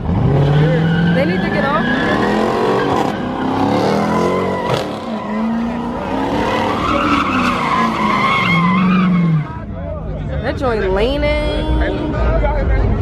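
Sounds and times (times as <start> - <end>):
tires squealing: 0.0 - 9.9
car engine revving: 0.0 - 10.5.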